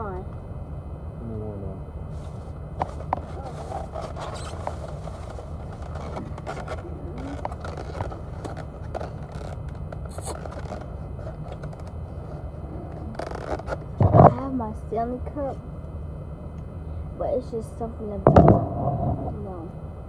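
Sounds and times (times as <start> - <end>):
steady low rumble: 0.0 - 20.0
food packaging crackling: 2.2 - 14.0.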